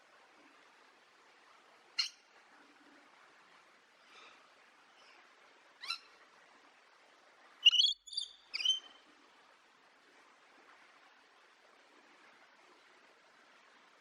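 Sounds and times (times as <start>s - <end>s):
faint steady hiss: 0.0s - 14.0s
sharp high bird chirps: 7.6s - 8.9s
high bird calls: 7.6s - 9.0s.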